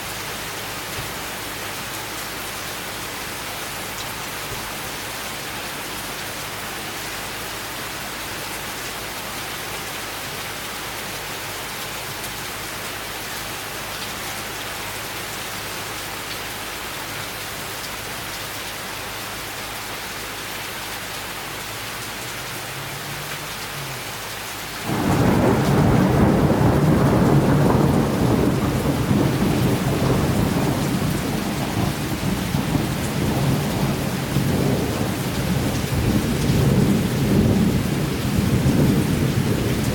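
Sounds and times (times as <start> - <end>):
steady rain falling: 0.0 - 39.9
thunderclap with rumble: 24.8 - 39.9.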